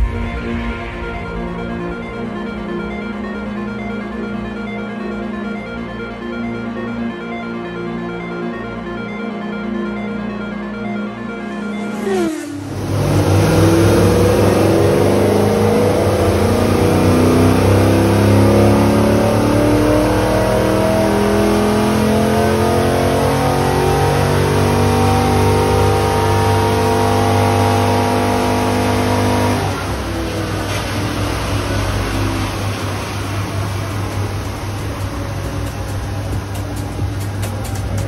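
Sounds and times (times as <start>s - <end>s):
car engine on dyno: 0.0s - 4.6s, 11.8s - 38.0s
music with falling sweep: 0.0s - 30.1s.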